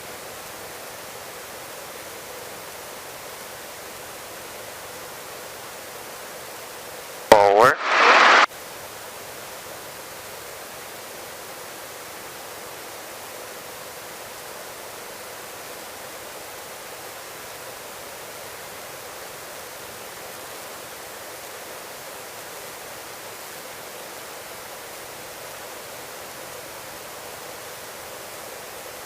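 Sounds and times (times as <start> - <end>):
helicopter cockpit hiss: 7.3 - 8.5.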